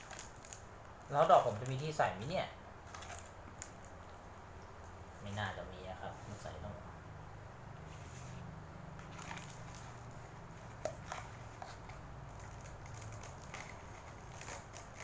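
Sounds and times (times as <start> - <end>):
low steady hum: 0.0 - 15.0
dry noodles rustling in plastic bowl: 9.0 - 15.0.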